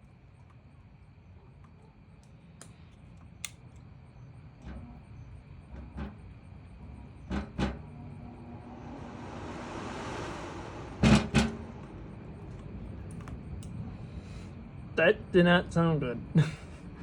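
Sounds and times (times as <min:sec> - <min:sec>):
furnace blower rumble: 0:04.4 - 0:17.0
blower air rush: 0:06.7 - 0:15.0.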